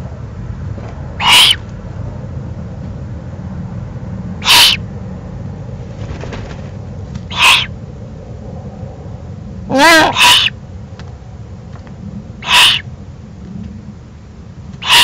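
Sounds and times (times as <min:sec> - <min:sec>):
low background rumble: 0:00.0 - 0:15.0
owl giving rasping hiss-like calls: 0:01.2 - 0:01.7, 0:04.4 - 0:04.8, 0:07.2 - 0:07.8, 0:09.7 - 0:10.6, 0:12.4 - 0:12.9, 0:14.8 - 0:15.0.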